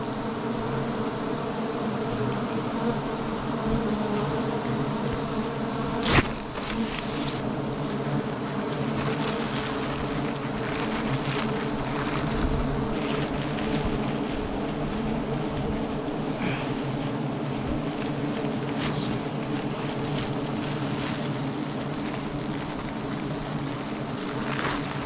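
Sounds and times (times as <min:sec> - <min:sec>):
honeybees buzzing: 0:00.0 - 0:25.0.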